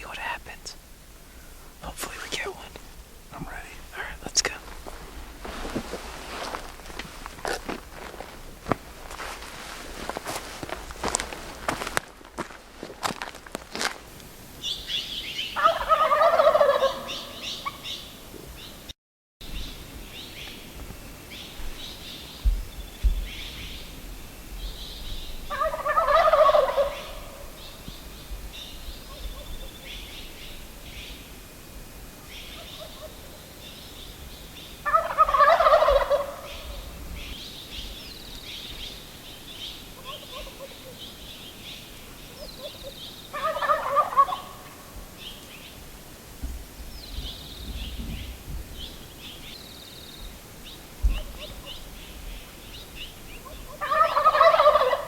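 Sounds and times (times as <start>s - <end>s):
small birds chirping: 0.0s - 8.3s, 14.6s - 31.5s, 32.2s - 45.9s, 46.6s - 55.0s
turkey gobbling: 15.6s - 17.9s, 25.5s - 27.5s, 34.8s - 36.8s, 40.0s - 41.0s, 42.3s - 44.8s, 51.1s - 51.8s, 53.4s - 55.0s.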